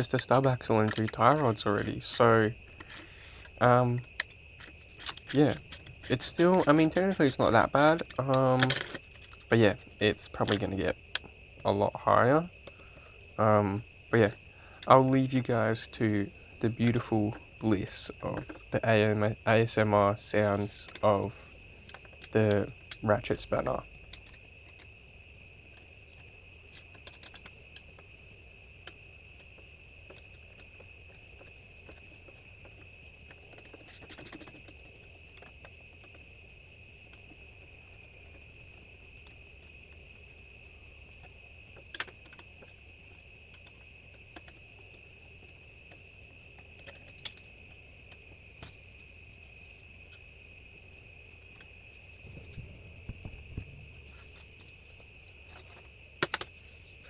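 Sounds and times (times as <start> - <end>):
ratchet spanner clicking: 0.0 - 9.6.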